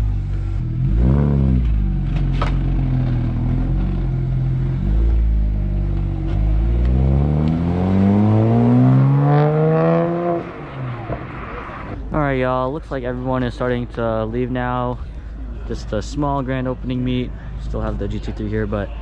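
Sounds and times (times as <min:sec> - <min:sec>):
car accelerating away: 0:00.0 - 0:12.0
car engine revving: 0:00.0 - 0:12.0.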